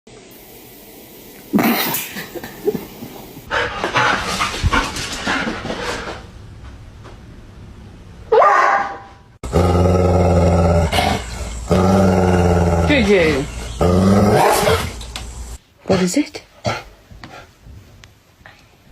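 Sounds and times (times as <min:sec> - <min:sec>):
dog sharp cry: 0:08.3 - 0:09.2
dog barking and growling: 0:08.3 - 0:15.1.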